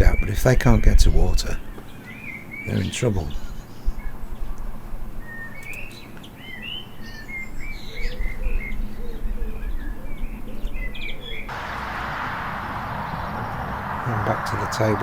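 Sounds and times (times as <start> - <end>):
low steady rumble: 11.5 - 15.0.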